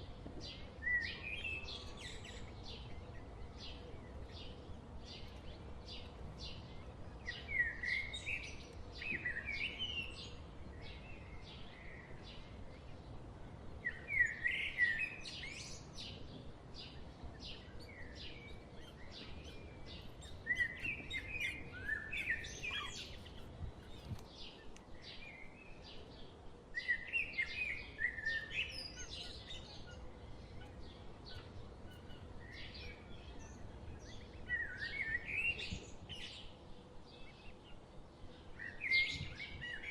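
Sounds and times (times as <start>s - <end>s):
small birds chirping: 0.0s - 39.9s
songbird warbling: 17.6s - 24.2s.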